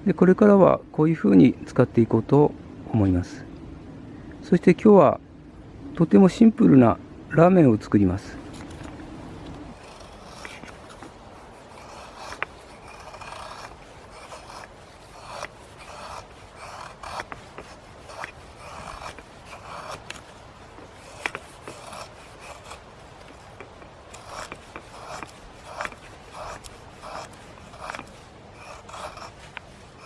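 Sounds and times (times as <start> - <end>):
hand scraping and rubbing: 8.1 - 30.0.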